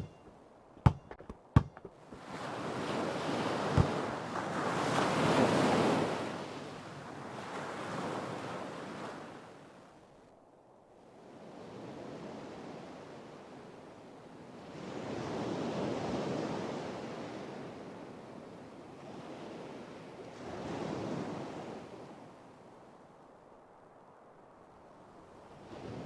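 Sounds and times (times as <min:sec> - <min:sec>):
ocean waves breaking on shore: 0:01.9 - 0:10.0, 0:11.1 - 0:26.0.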